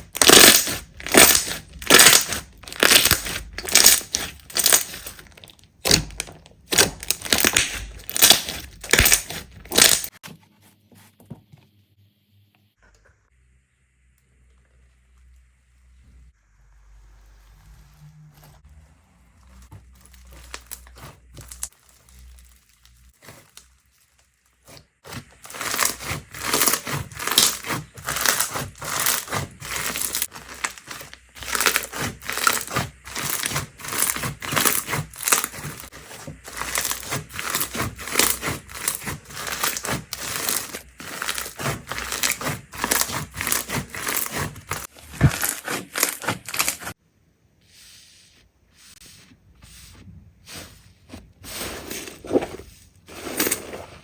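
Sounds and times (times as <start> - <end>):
slime squeezed by hand crackling: 0.1 - 5.2, 6.7 - 10.1.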